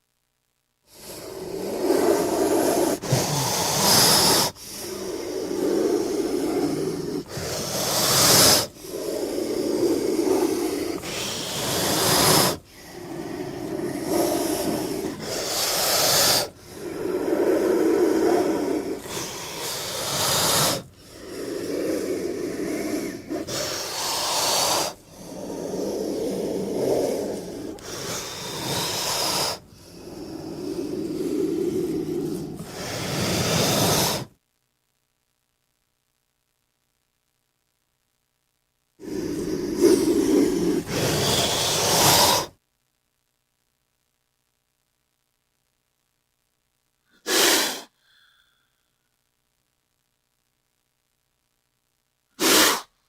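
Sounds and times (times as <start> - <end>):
snake hissing: 0.9 - 34.3, 39.0 - 42.6, 47.2 - 48.0, 52.4 - 53.0.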